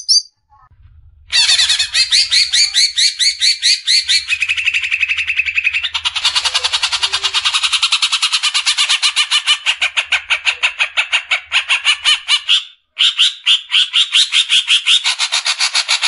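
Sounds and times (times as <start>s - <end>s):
bird rapid chattering song: 0.0s - 0.3s, 1.4s - 16.0s.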